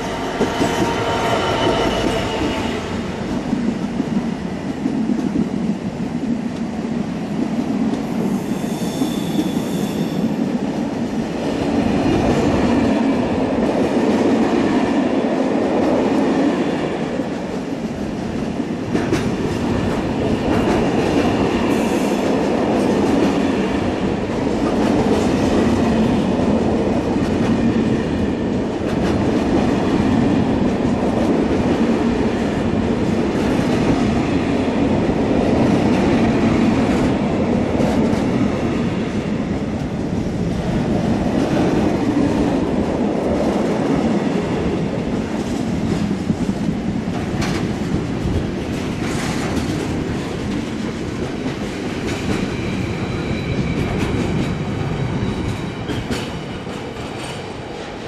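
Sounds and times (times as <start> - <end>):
train wheels rumbling on rail: 0.0 - 58.0
high wheel squeals: 8.4 - 10.2.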